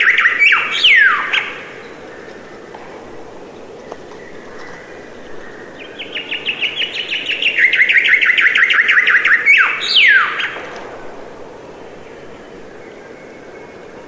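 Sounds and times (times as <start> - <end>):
songbird trilling: 0.0 - 2.4, 3.9 - 10.6
steady hiss: 0.0 - 14.0
downward-sweeping whistles: 6.6 - 10.6.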